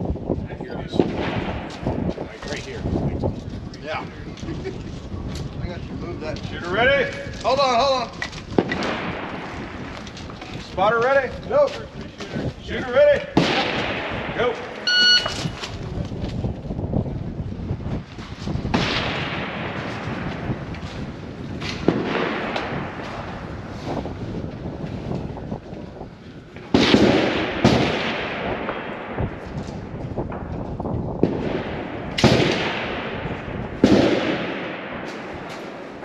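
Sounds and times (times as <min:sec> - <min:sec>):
rifle shots echoing: 0:00.9 - 0:02.0, 0:08.6 - 0:09.9, 0:13.3 - 0:15.2, 0:18.7 - 0:20.6, 0:21.7 - 0:23.3, 0:26.7 - 0:30.4, 0:31.2 - 0:36.0.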